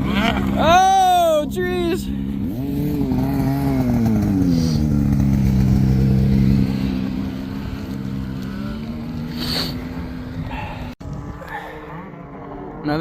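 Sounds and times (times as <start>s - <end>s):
snowmobile engine revving: 0.0s - 13.0s.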